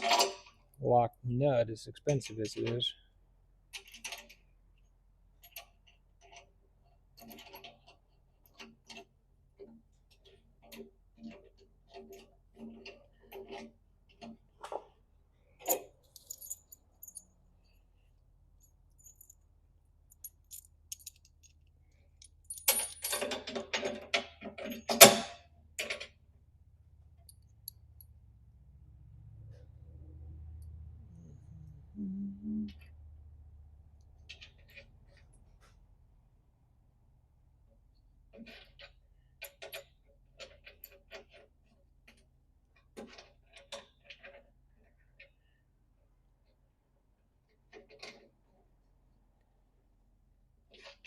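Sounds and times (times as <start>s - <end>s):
small metal hardware clinking: 15.6s - 17.3s, 18.6s - 19.5s, 20.1s - 26.2s.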